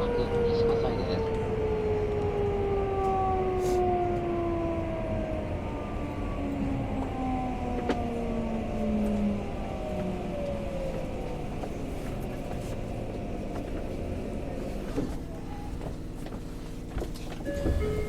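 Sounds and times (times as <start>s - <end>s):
train inverter whining: 0.0s - 18.0s
wheel and track rumble: 4.1s - 18.0s.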